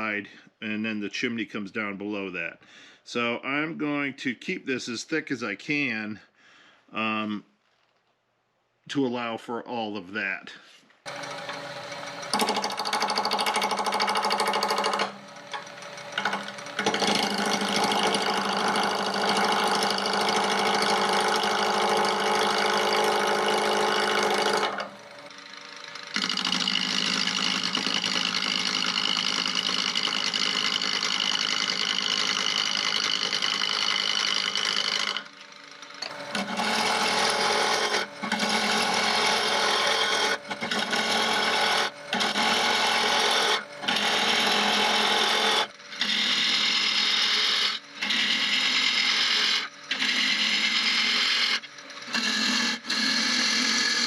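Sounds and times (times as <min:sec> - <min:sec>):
gouge cutting spinning wood: 0:11.1 - 0:54.0
lathe motor hum: 0:11.1 - 0:54.0.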